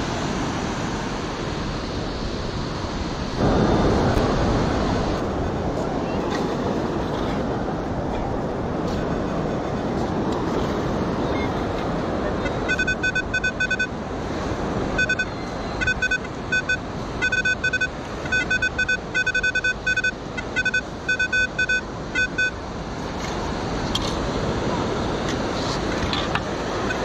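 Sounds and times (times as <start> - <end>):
wind noise: 0.0 - 16.0
surf: 0.0 - 27.0
metal detector beeps: 12.4 - 13.9, 15.0 - 22.6.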